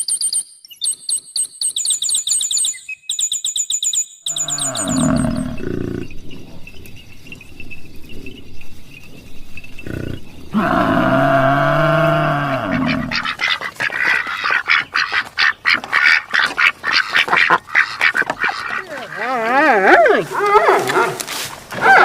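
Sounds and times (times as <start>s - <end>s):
wavering animal call: 4.3s - 6.1s, 9.9s - 21.1s
ducks quacking: 12.6s - 21.1s.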